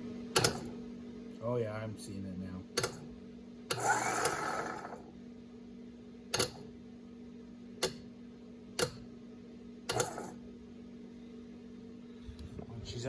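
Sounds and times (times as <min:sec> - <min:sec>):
steady low hum: 0:00.0 - 0:13.0
winch clicking on and off: 0:03.7 - 0:05.0.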